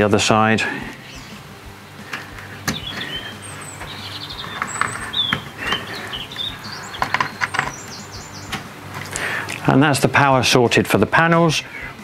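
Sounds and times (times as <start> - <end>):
small birds chirping and whistling: 0.8 - 9.6, 11.6 - 12.0.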